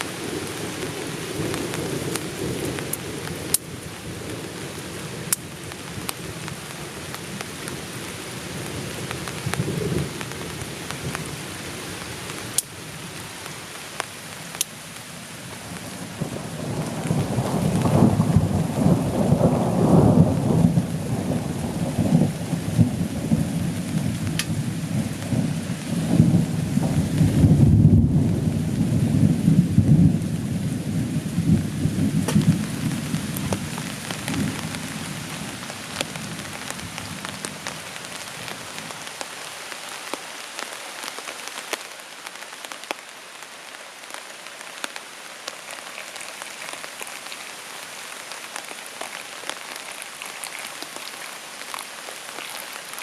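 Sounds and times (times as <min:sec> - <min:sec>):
raindrops pattering: 0:00.0 - 0:53.0
steady rain: 0:00.0 - 0:53.0
thunder rumbling: 0:15.7 - 0:39.0.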